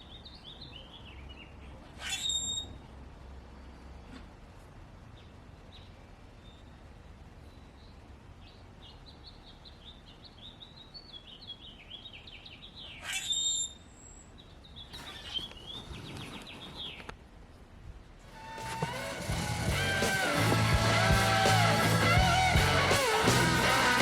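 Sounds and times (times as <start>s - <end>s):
small bird chirping: 7.4s - 17.2s
rush of noise: 18.3s - 24.0s.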